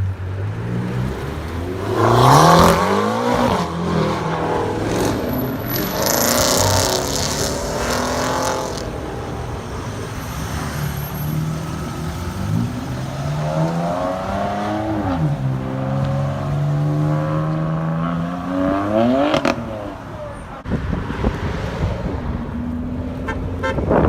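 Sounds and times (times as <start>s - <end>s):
loud exhaust rush: 0.0s - 24.0s
sports car engine revving: 0.4s - 9.7s.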